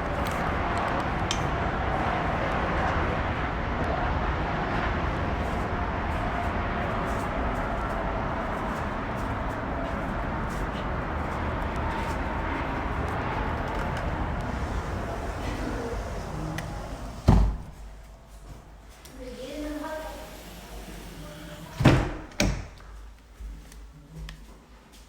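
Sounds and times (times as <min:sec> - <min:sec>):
low traffic rumble: 0:00.0 - 0:22.9
door shutting: 0:13.6 - 0:18.0, 0:19.8 - 0:22.8.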